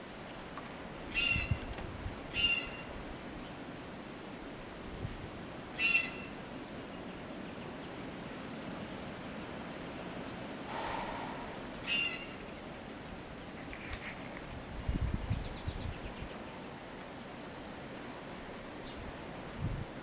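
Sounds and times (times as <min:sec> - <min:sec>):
steady outdoor hush: 0:00.0 - 0:20.0
bird calling: 0:01.1 - 0:01.6, 0:02.3 - 0:03.0, 0:05.6 - 0:07.1, 0:10.7 - 0:13.4.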